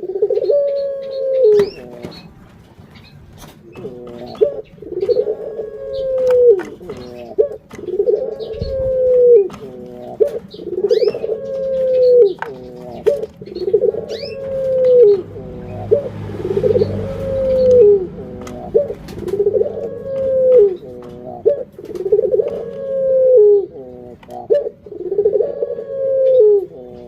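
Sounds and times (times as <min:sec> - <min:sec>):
dove cooing: 0:00.0 - 0:27.0
small bird high chirps: 0:10.0 - 0:15.9.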